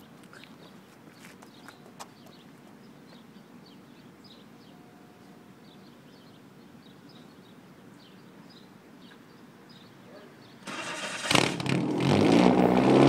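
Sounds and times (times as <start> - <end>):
small birds chirping: 0.0 - 10.7.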